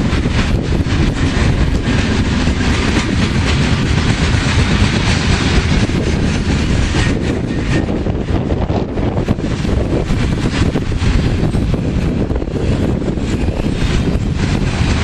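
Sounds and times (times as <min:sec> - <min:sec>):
train cars rumbling: 0:00.0 - 0:15.0
wheels clattering over rails: 0:00.0 - 0:15.0.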